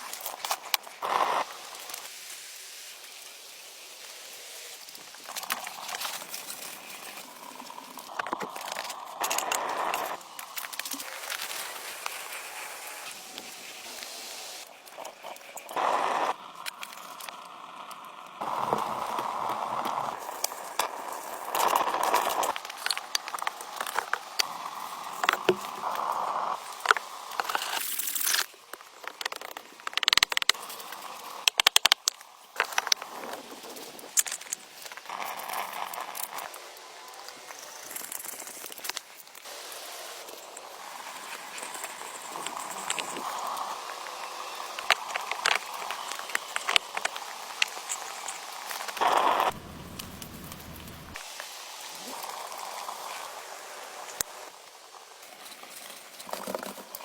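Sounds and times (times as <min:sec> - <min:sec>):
dry leaves rustling: 0:00.0 - 0:09.4, 0:10.1 - 0:15.9, 0:32.3 - 0:57.0
rustling and crackling: 0:37.5 - 0:53.3.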